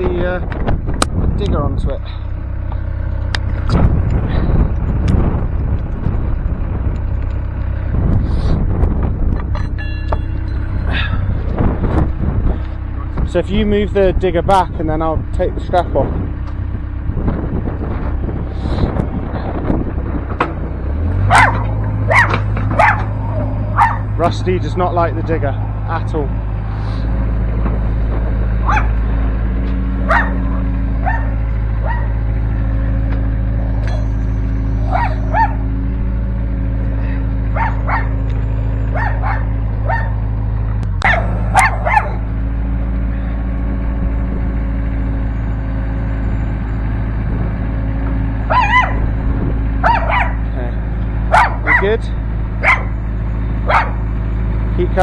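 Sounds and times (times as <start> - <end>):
excavator diesel engine running: 0.0 - 55.0
dog barking: 21.3 - 24.1, 28.6 - 29.0, 30.1 - 32.2, 34.8 - 35.6, 37.5 - 38.2, 38.9 - 40.2, 41.0 - 42.2, 48.5 - 49.0, 49.8 - 50.4, 51.3 - 51.9, 52.6 - 53.0, 53.6 - 54.0.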